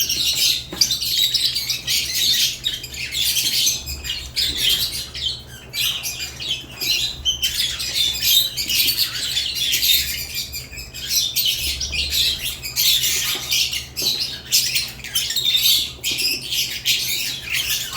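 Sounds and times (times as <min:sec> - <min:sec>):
lovebirds chirping and squawking: 0:00.0 - 0:17.9.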